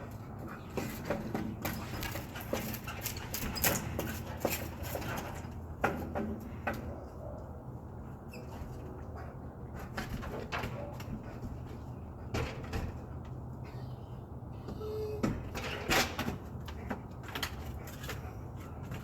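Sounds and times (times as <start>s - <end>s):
dog claws scratching and scrabbling: 0.1s - 6.4s, 15.5s - 19.0s.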